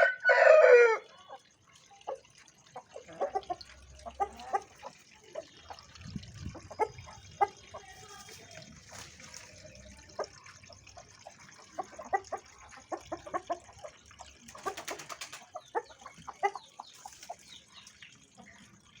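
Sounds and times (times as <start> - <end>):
chickens clucking: 0.0 - 18.8.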